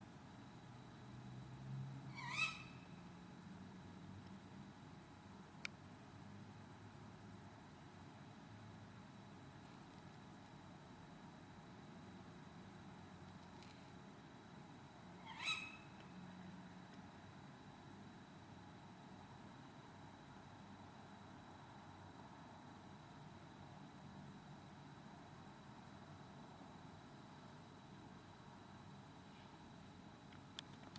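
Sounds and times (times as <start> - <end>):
high-pitched insect trill: 0.1 - 30.9
owl screeching: 2.1 - 2.8, 15.2 - 16.0.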